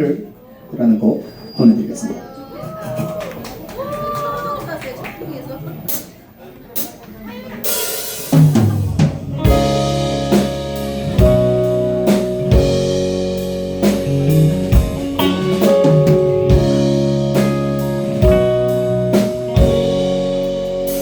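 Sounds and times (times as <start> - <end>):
rock band playing: 7.6 - 21.0.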